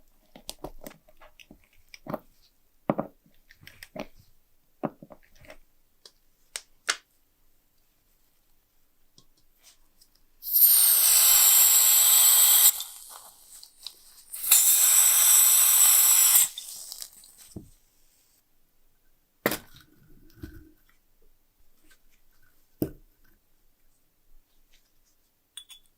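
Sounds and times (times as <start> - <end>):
aerosol can spraying: 10.4 - 13.7, 14.3 - 17.6.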